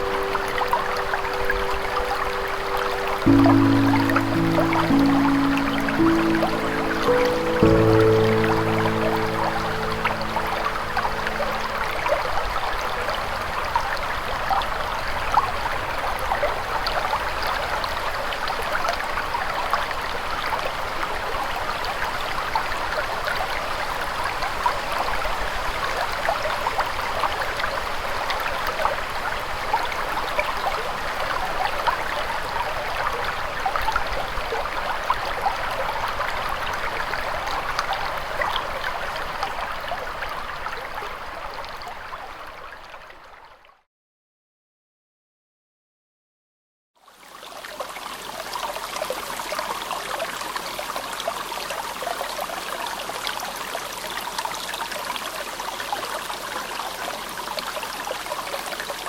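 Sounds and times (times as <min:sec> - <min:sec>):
stream babbling: 0:00.0 - 0:43.5.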